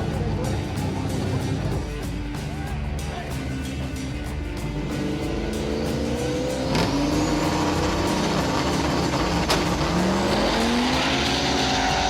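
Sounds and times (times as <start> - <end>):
cars accelerating at full throttle: 4.7 - 12.0.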